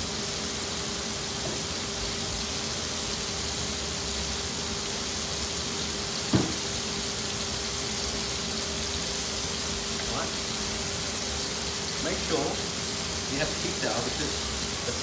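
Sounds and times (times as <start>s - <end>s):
tomatoes sizzling in oil: 0.0s - 15.0s
knock: 6.3s - 6.6s.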